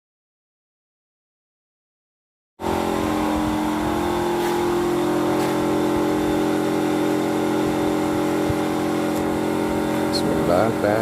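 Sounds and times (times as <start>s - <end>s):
diesel engine running: 2.6s - 11.0s.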